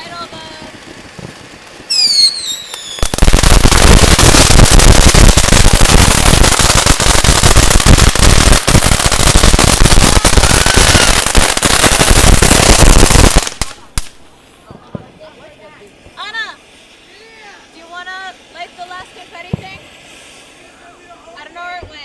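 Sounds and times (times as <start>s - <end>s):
firecrackers rattling bangs: 0.0s - 16.3s.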